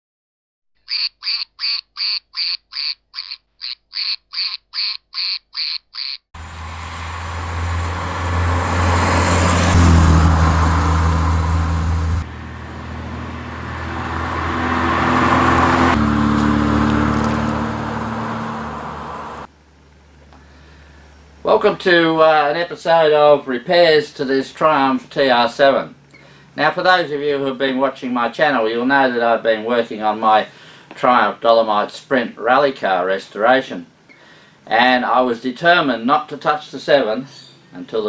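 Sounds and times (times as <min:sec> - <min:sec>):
squeaky quacks: 0:00.8 - 0:06.3
car engine driving: 0:06.4 - 0:22.0.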